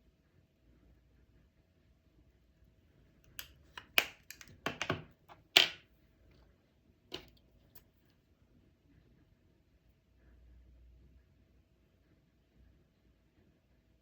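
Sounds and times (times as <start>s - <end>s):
makeup containers clicking and tapping: 3.4s - 5.8s, 7.1s - 7.3s.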